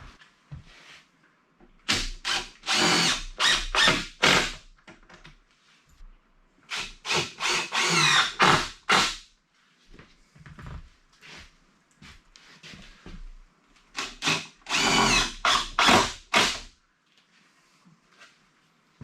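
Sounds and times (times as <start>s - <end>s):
power drill driving screws: 1.9s - 4.6s, 6.7s - 9.2s, 14.0s - 16.7s.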